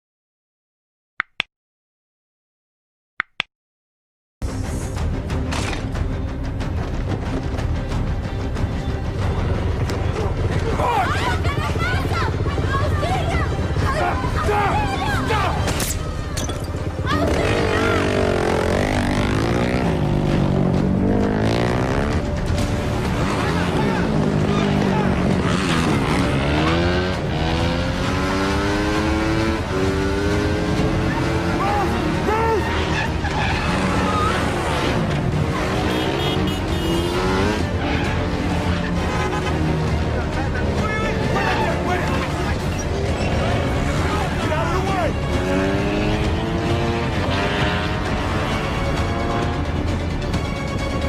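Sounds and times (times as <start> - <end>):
film score music: 4.4 - 51.0
motorcycle engine revving: 16.7 - 50.0
tyre squeal: 32.5 - 34.6.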